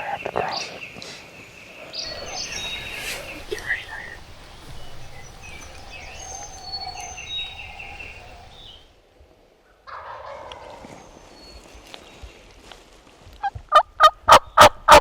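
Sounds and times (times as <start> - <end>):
turkeys gobbling: 2.1 - 8.8.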